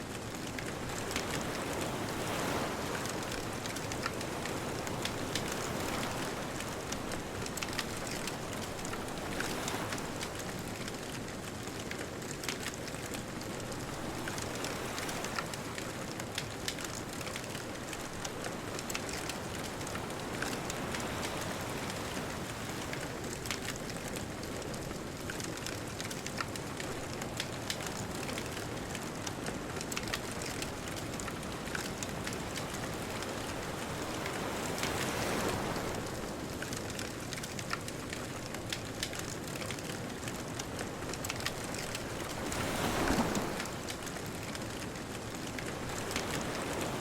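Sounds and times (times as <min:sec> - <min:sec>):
bonfire crackling: 0:00.1 - 0:47.0
distant ocean surf: 0:29.8 - 0:47.0.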